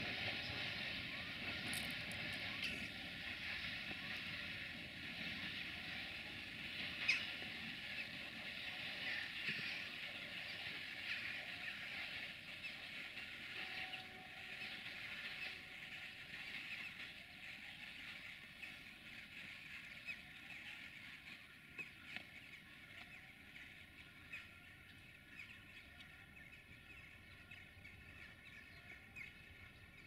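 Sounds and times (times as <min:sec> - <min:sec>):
wheels squeaking on rail: 0:00.0 - 0:17.2
distant freight train rolling: 0:00.0 - 0:22.0.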